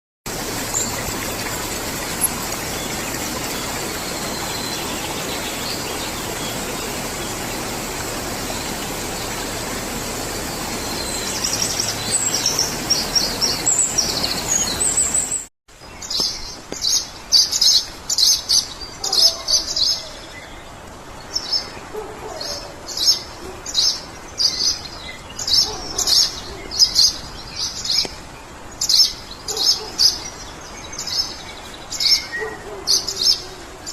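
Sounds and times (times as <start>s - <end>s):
songbirds chirping: 0.3s - 33.9s.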